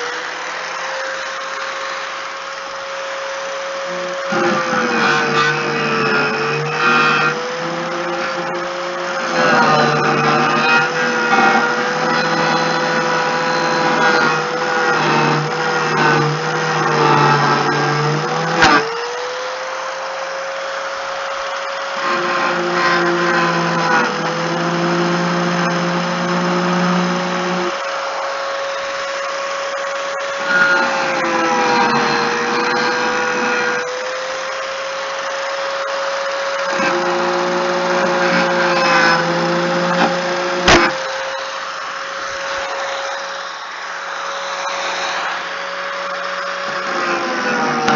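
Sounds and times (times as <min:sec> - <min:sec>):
power tool motor whining: 0:00.0 - 0:47.9.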